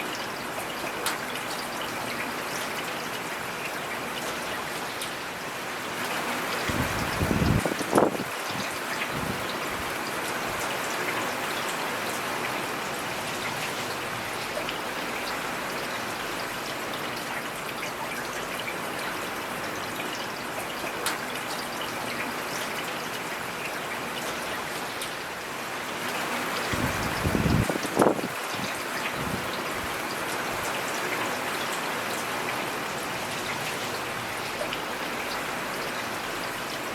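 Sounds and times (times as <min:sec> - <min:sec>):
rain hissing: 0:06.2 - 0:10.6, 0:26.2 - 0:30.6.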